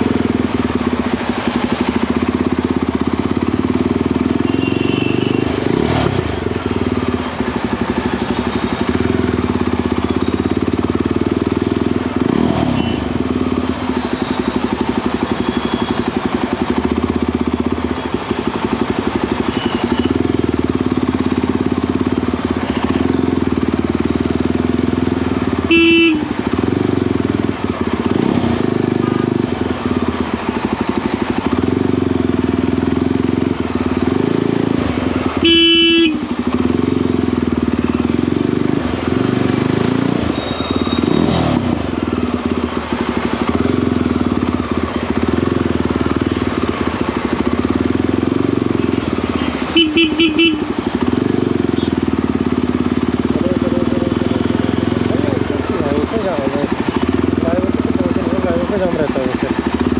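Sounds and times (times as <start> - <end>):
motorcycle engine running: 0.0 - 59.9
horn honks: 4.4 - 5.9, 12.6 - 13.2, 19.4 - 20.3, 25.6 - 26.5, 35.3 - 36.5, 48.6 - 52.2.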